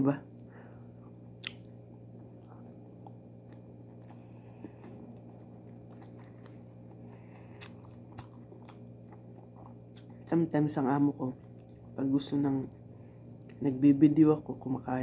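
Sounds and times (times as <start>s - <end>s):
steady low hum: 0.0s - 15.0s
person chewing: 0.8s - 10.3s, 11.4s - 12.0s, 13.1s - 13.7s
mouth clicks and smacks: 1.3s - 1.8s.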